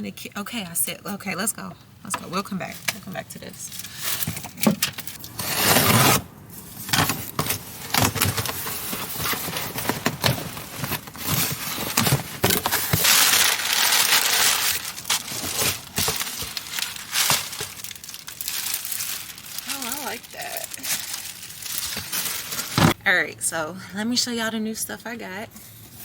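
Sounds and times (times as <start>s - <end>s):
packaging crinkling: 6.8s - 23.0s.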